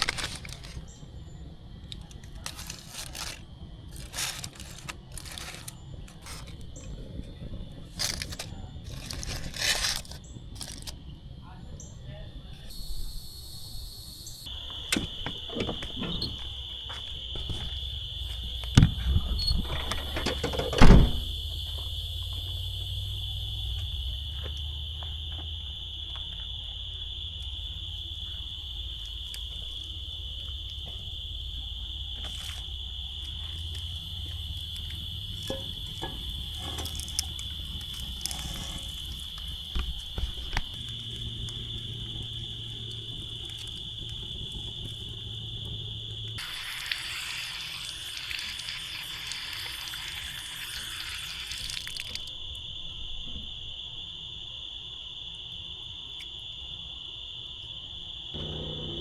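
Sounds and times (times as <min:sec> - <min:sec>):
crickets chirring: 0:00.0 - 0:59.0
low rumble: 0:58.4 - 0:59.0.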